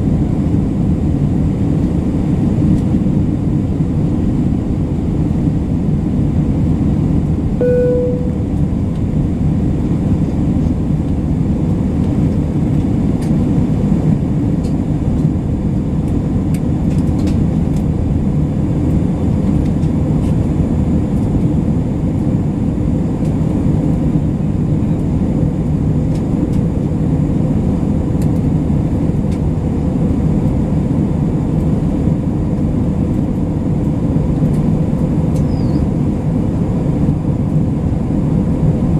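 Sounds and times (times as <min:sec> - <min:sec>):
airplane cabin drone: 0:00.0 - 0:38.9
brief single tone: 0:07.6 - 0:08.6.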